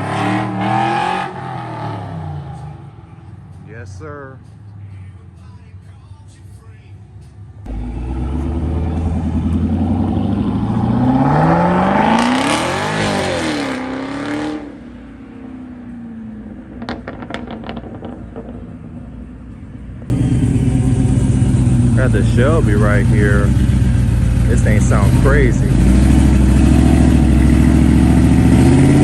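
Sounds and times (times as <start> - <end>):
car engine accelerating: 0.0 - 3.3, 7.7 - 14.9, 20.0 - 29.0
engine running loudly: 20.1 - 29.0.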